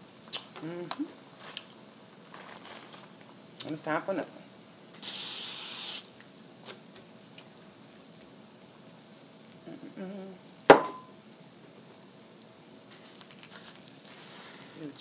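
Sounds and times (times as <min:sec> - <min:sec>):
food sizzling on a griddle: 0:00.0 - 0:15.0
sharp metallic knock: 0:10.7 - 0:11.1.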